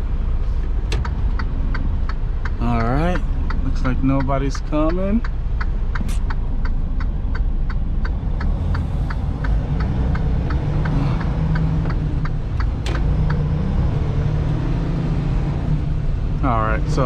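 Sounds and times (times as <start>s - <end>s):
diesel truck engine rumble: 0.0s - 17.0s
turn signal clicking: 0.6s - 14.0s.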